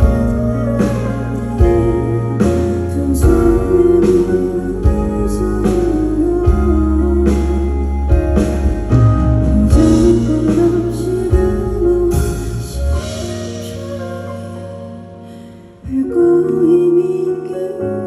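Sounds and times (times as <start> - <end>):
live band playing pop song: 0.0 - 18.0.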